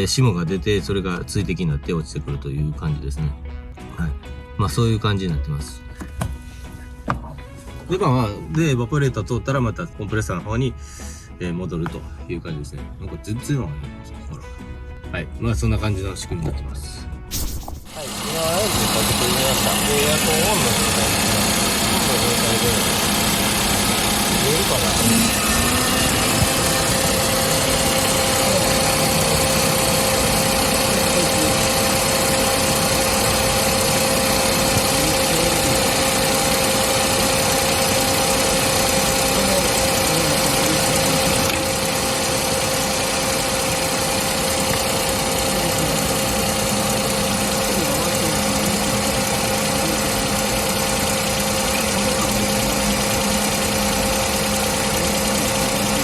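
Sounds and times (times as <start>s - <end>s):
car engine idling: 17.9s - 56.0s.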